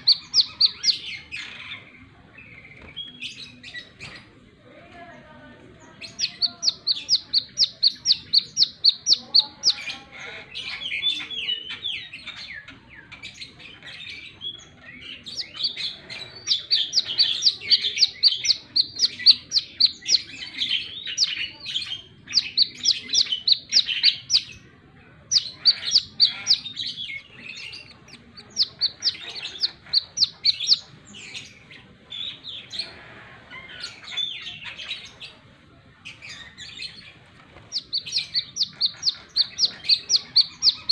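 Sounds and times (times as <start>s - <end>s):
bird twittering: 0.0s - 1.8s, 6.0s - 10.0s, 15.1s - 24.6s, 25.3s - 31.6s, 37.7s - 40.9s.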